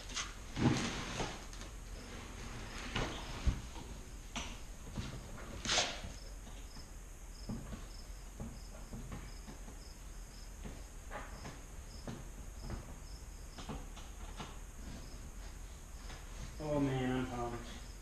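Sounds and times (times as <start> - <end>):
cricket chirping: 5.9 - 13.7, 16.0 - 18.0.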